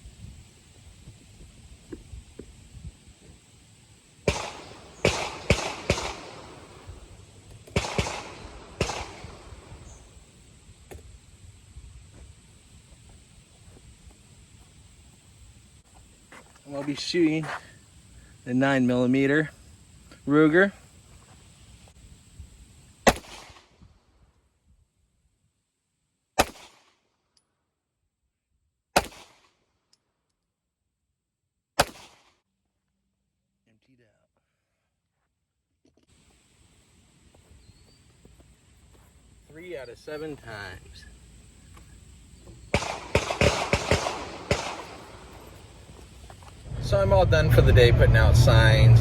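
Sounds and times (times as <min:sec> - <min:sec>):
rifle shots with echo: 0:04.2 - 0:10.1, 0:23.0 - 0:23.7, 0:26.4 - 0:26.9, 0:29.0 - 0:29.5, 0:31.8 - 0:32.3, 0:42.7 - 0:45.8.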